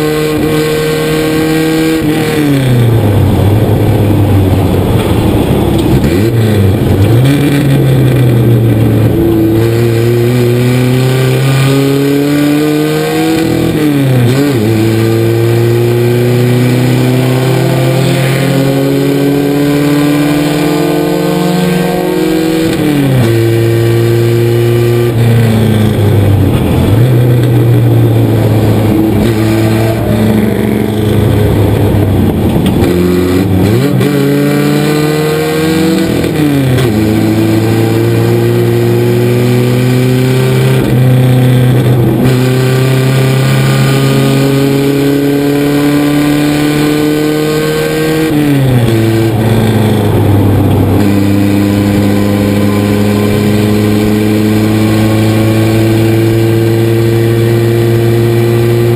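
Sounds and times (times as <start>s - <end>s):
road and wind noise: 0.0s - 58.9s
truck engine under hard load: 0.0s - 58.9s.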